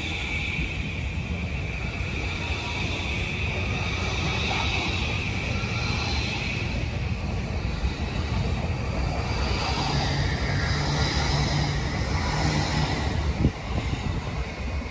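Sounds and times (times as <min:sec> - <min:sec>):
high whine: 0:00.0 - 0:14.9
train wheels rumbling on rails: 0:00.0 - 0:14.9.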